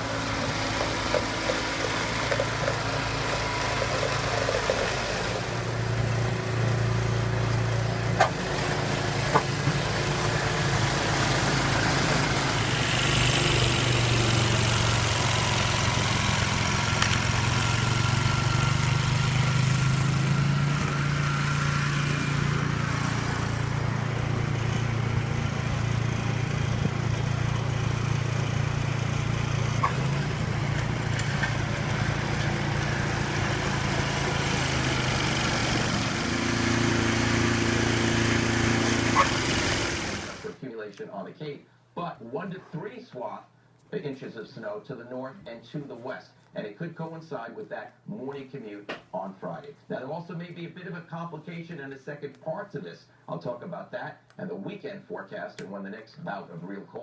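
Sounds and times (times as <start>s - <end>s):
low motor hum: 0.0s - 40.5s.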